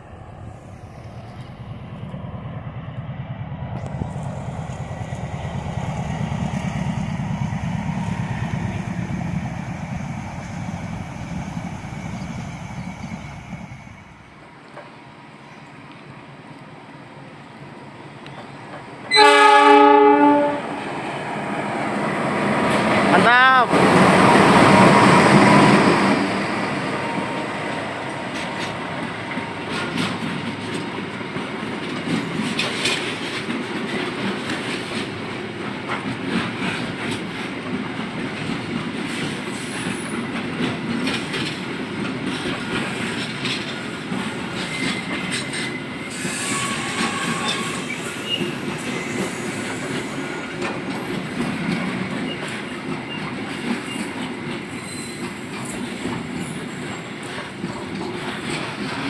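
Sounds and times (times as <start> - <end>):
train wheels rumbling on rails: 0.0 - 59.0
faint wheel squeal: 44.6 - 50.5, 54.7 - 55.4.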